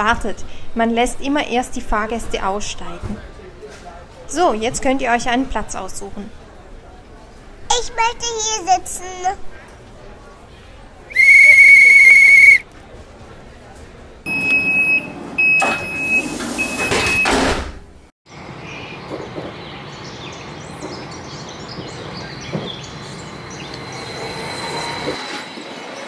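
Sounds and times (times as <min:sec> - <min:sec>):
high warning beeps: 0:14.3 - 0:17.3
train doors hissing shut: 0:14.6 - 0:17.8
train running along track: 0:18.5 - 0:26.0.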